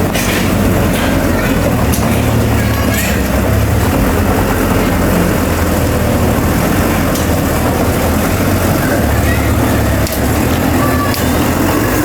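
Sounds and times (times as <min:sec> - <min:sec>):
bulldozer diesel engine droning: 0:00.0 - 0:12.0.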